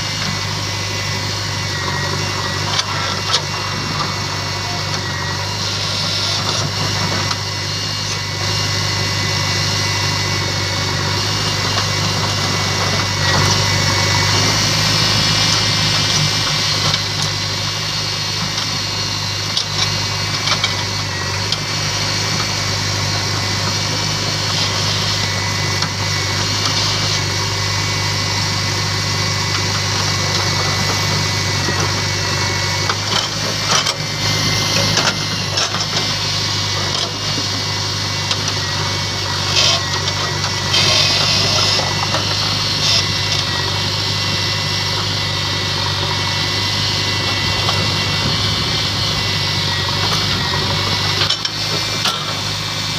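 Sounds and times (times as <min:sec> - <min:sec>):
heavy diesel engine running: 0:00.0 - 0:52.9.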